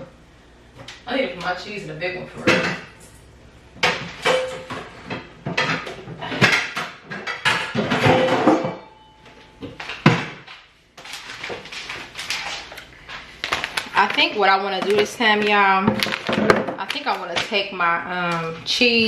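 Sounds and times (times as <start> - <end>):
plastic containers clattering: 3.9 - 8.9, 9.6 - 18.7.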